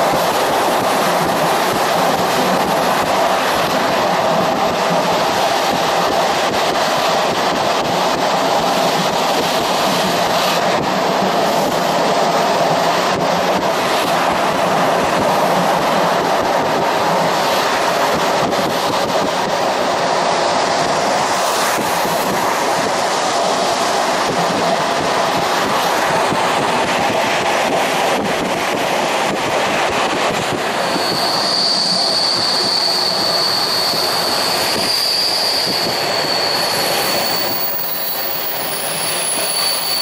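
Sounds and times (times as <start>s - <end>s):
train wheels on rails: 0.0s - 40.0s.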